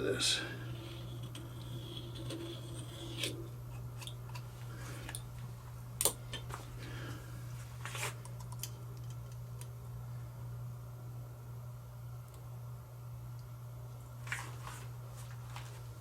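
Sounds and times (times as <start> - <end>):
steady low hum: 0.0 - 16.0
tool scraping metal edge: 0.6 - 4.4.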